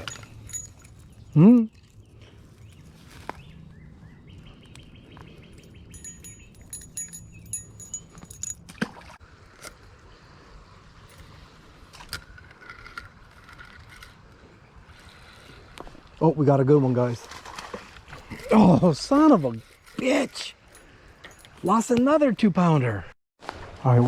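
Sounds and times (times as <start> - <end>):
light metallic jingling: 0.0 - 1.9, 5.4 - 9.1, 20.1 - 22.0.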